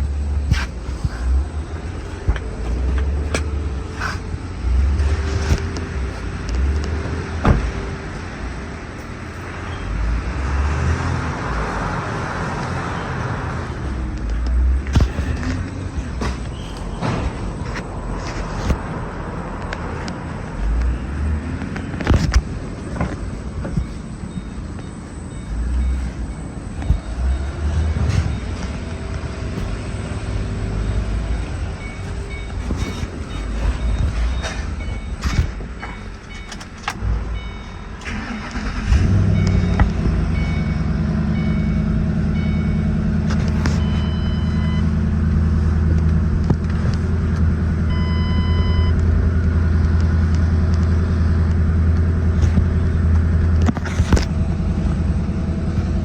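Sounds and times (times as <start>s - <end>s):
car warning chimes beeping: 0.0s - 10.0s, 20.0s - 45.1s, 47.8s - 49.2s
car engine starting and idling: 0.0s - 56.0s.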